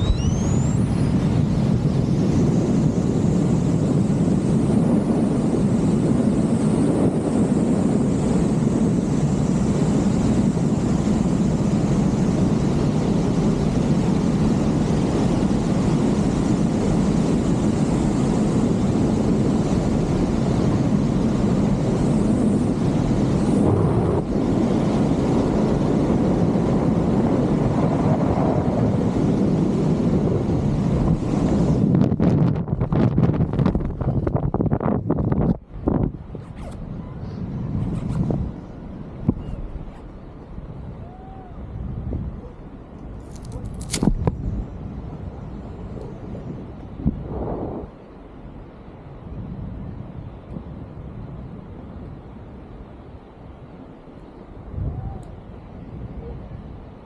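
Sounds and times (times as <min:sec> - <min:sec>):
thin high whine: 0:00.0 - 0:25.6
wind buffeting microphone: 0:00.0 - 0:57.0.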